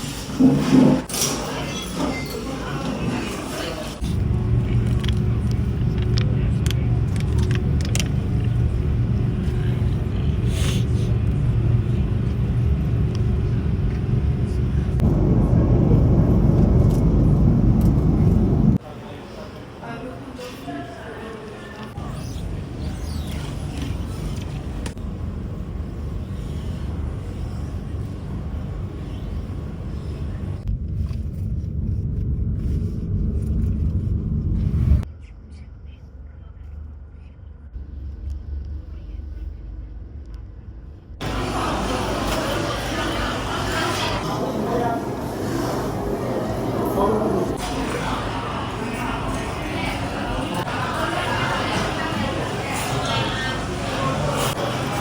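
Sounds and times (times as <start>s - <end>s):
moving vehicle rumble: 4.0s - 18.8s
steady low rumble: 4.0s - 18.8s, 24.4s - 41.5s.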